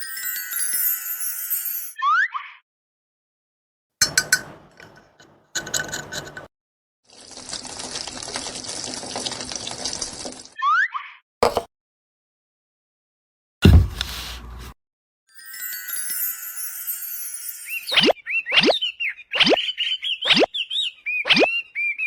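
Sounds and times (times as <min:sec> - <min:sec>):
low thud: 0:13.6 - 0:14.1.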